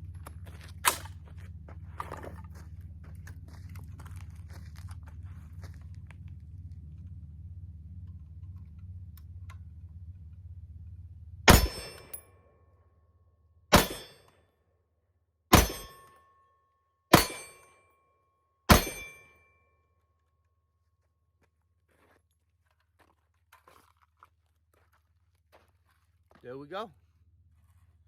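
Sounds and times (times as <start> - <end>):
gunshots: 11.5 - 12.2, 13.7 - 14.2, 15.5 - 16.0, 17.1 - 17.6, 18.7 - 19.2
steel target ding: 11.5 - 12.2, 13.7 - 14.3, 15.5 - 16.3, 17.1 - 17.8, 18.7 - 19.5.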